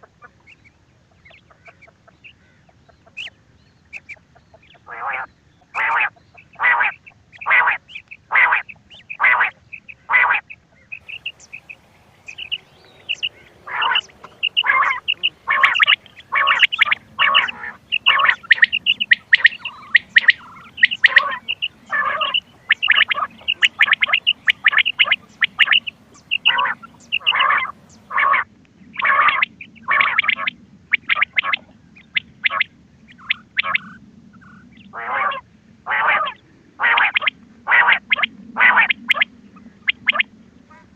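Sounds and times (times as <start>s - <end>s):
quail calls: 0.0s - 40.9s
high chirps: 11.0s - 28.1s.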